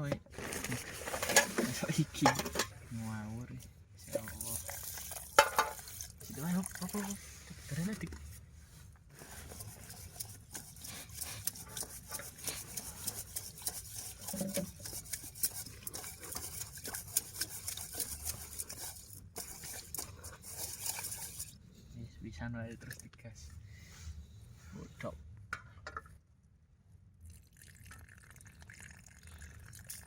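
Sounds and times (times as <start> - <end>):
utensil scraping in cooking pan: 0.4 - 3.2, 4.1 - 8.0, 9.2 - 21.6.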